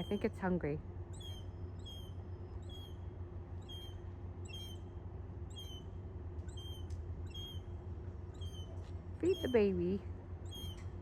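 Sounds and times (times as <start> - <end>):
steady low hum: 0.0 - 11.0
young animal begging calls: 8.4 - 10.8.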